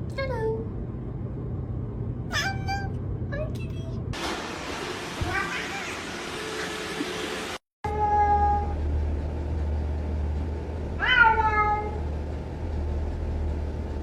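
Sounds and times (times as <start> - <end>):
cat meowing: 11.0 - 12.0.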